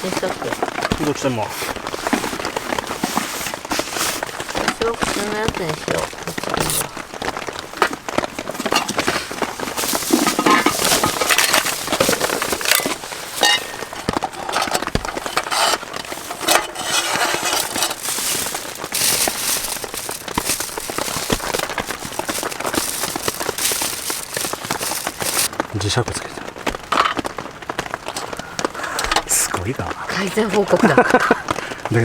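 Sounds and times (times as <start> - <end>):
heavy rain on tent fabric: 0.0 - 32.0.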